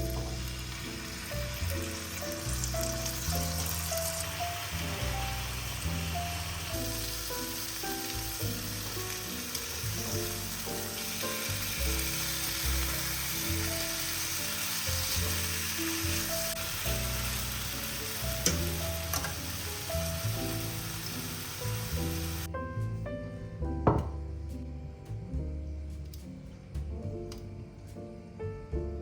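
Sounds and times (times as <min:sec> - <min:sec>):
food sizzling in a pan: 0:00.0 - 0:22.5
soft background music: 0:00.0 - 0:29.0.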